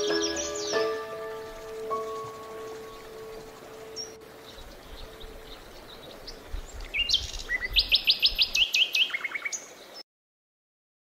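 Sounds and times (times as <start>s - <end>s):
piano music: 0.0s - 5.7s
songbird singing: 0.0s - 10.0s.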